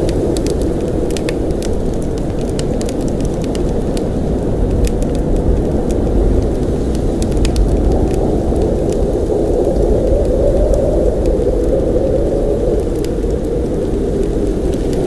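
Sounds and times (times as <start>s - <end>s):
light ticks: 0.0s - 11.8s
blizzard wind rumble: 0.0s - 15.0s.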